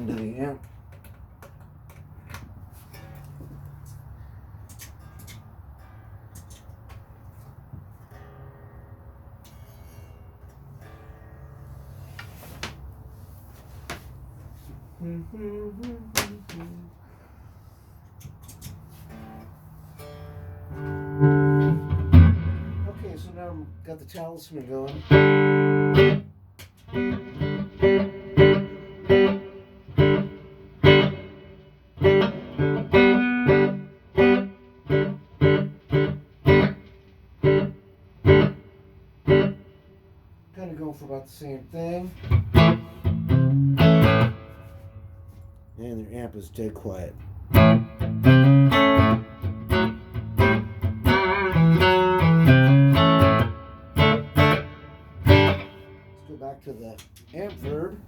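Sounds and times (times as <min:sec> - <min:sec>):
electric guitar with reverb: 0:19.2 - 0:26.3, 0:26.9 - 0:40.0, 0:42.0 - 0:45.4, 0:47.3 - 0:56.7.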